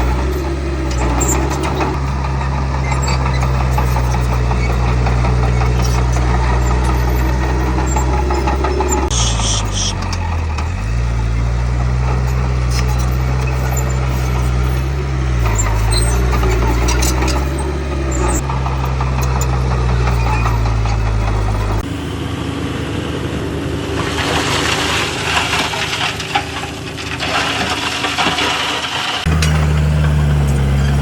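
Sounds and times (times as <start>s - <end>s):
rough rattling noise: 0.0s - 21.9s
heavy diesel engine running: 0.0s - 31.0s.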